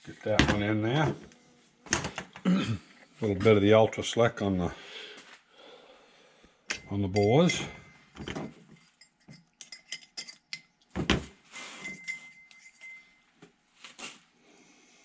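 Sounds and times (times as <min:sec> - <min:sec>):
metallic clinks of engine parts: 0:11.8 - 0:13.2.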